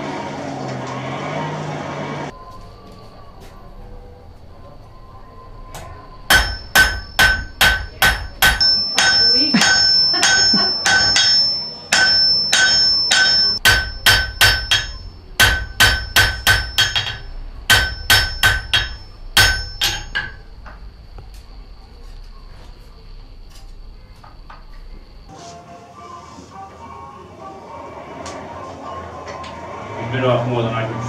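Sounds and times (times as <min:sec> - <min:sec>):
hammer striking metal on anvil: 0:06.3 - 0:20.5.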